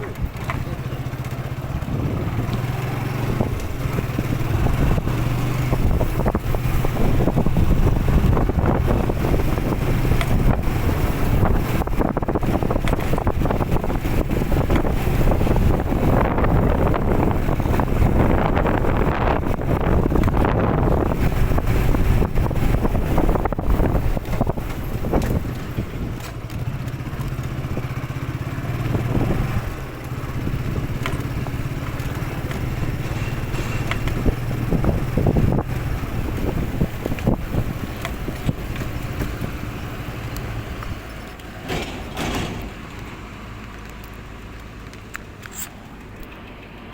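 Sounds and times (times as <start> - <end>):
motorcycle engine drone: 0.0 - 46.9
knocks and scrapes: 30.9 - 39.6, 40.8 - 43.2.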